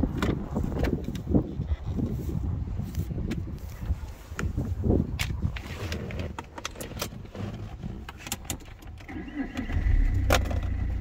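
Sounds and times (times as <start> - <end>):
diesel engine cranking and starting: 8.3 - 11.0.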